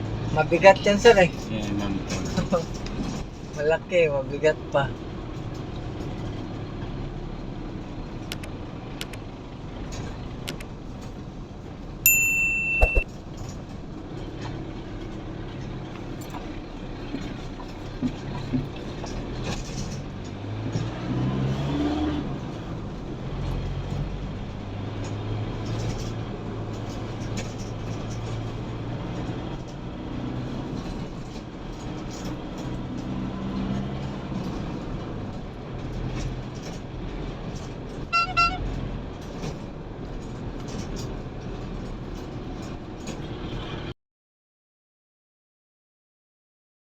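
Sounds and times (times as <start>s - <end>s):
traffic engines running: 0.0s - 44.0s
short high-pitched beep: 12.1s - 13.0s, 38.1s - 38.6s.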